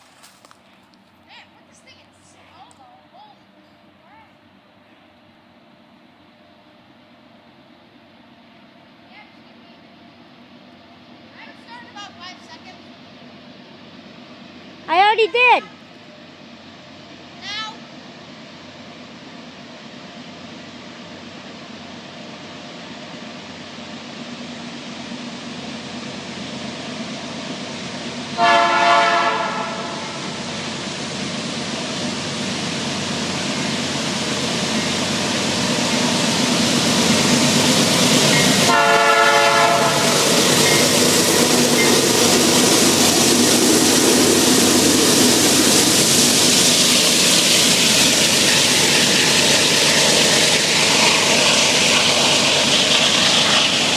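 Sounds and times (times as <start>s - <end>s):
freight train passing: 0.0s - 53.9s
locomotive air horn blasts: 28.4s - 30.2s, 38.7s - 40.2s.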